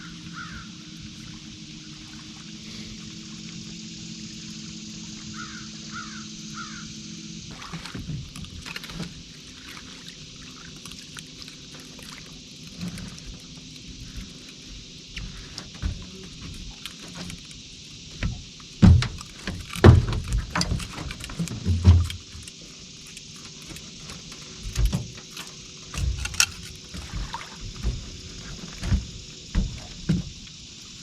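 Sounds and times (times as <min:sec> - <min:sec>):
crow cawing: 0:00.0 - 0:00.8, 0:05.3 - 0:07.0
steady low hum: 0:00.0 - 0:31.0
knocks and clatter: 0:18.2 - 0:22.2.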